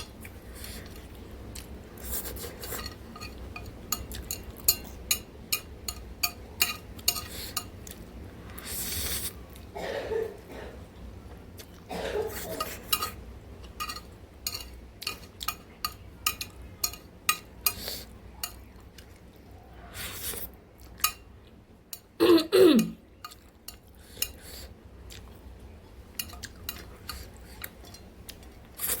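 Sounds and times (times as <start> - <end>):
chewing and eating: 0.0 - 8.8, 11.2 - 22.2, 23.2 - 29.0
utensils clinking against bowl: 2.3 - 7.8, 12.2 - 18.7, 26.1 - 28.1.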